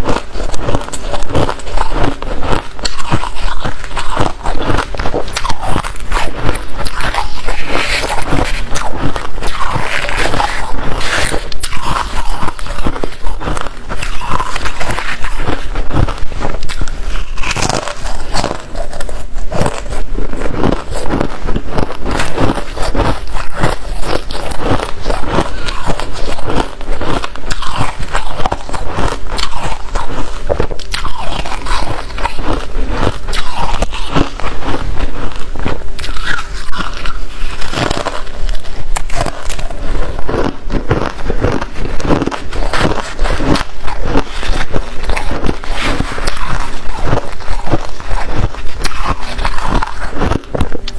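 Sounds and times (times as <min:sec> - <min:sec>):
chewing crunchy frost: 0:00.0 - 0:50.9.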